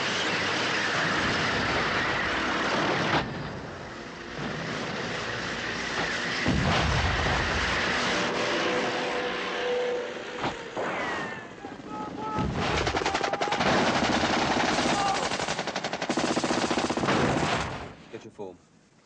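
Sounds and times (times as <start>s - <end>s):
vehicle noise: 0.0s - 16.0s
rapid machine-gun fire: 12.4s - 18.0s.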